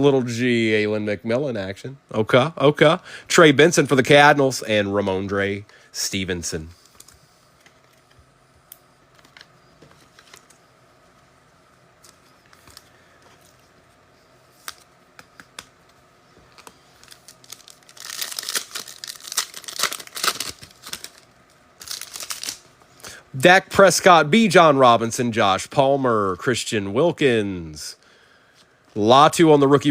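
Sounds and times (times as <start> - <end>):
foil pack crinkling and tearing: 16.5 - 22.7.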